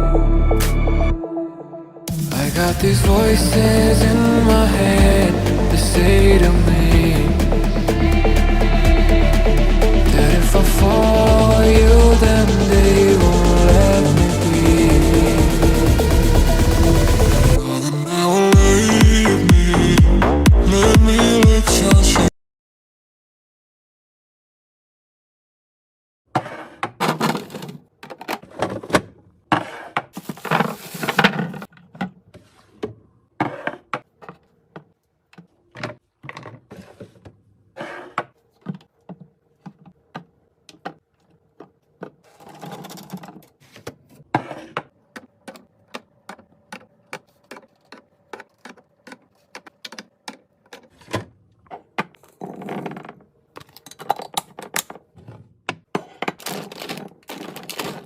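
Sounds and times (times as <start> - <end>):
plastic containers clicking and tapping: 38.2 - 58.0
packaging rustling: 56.1 - 58.0.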